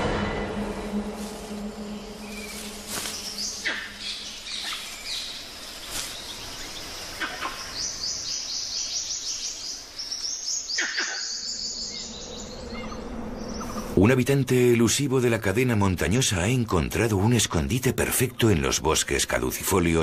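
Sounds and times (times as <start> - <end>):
birds calling: 0.0 - 14.1
insects buzzing: 0.0 - 14.4.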